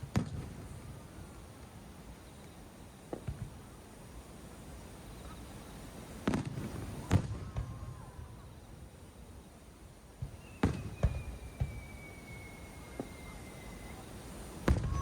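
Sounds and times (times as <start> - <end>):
fireworks bursting: 0.0 - 1.8, 6.1 - 8.5, 10.2 - 15.0
faint falling whistle: 10.3 - 15.0.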